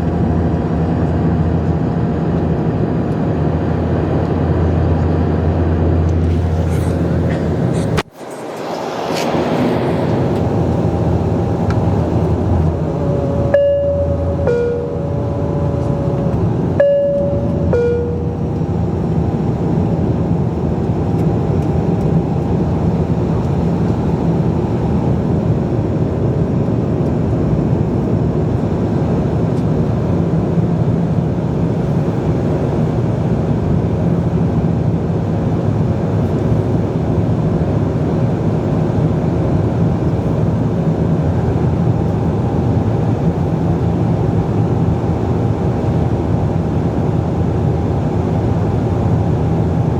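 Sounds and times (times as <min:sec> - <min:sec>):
aircraft cabin drone: 0:00.0 - 0:49.9
two-tone cabin chime: 0:12.9 - 0:18.7.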